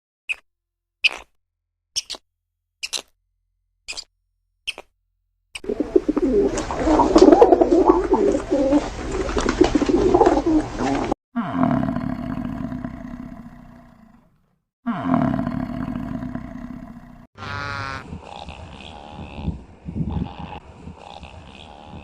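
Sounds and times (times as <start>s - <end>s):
pigeons cooing: 5.6s - 11.2s.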